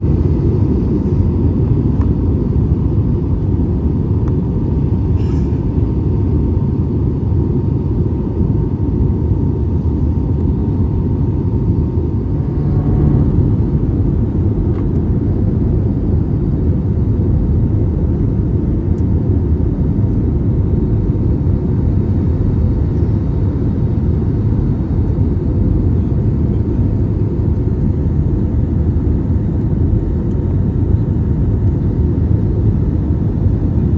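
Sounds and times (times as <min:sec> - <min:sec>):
airplane cabin rumble: 0:00.0 - 0:33.9
faint steady whine: 0:07.6 - 0:16.7.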